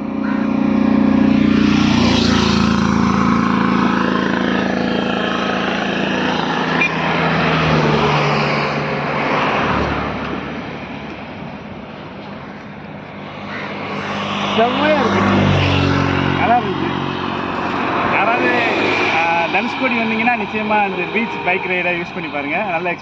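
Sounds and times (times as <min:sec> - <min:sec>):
atv engine running: 0:00.0 - 0:09.2.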